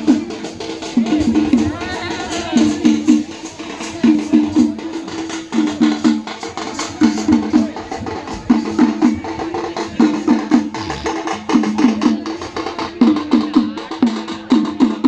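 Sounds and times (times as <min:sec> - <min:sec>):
pitched drum strokes: 0:00.0 - 0:15.0.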